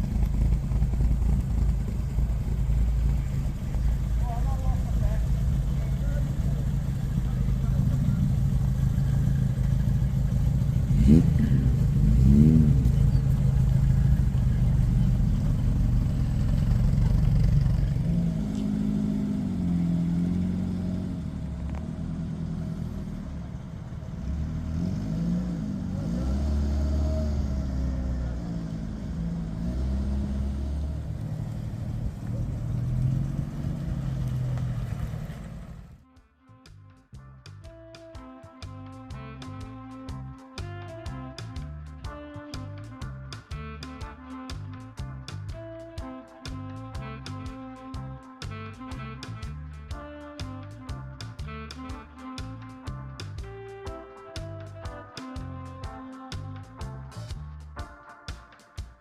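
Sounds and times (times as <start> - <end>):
car engine idling: 0.0 - 36.0
people talking: 2.3 - 19.1, 27.8 - 29.7, 30.8 - 33.3.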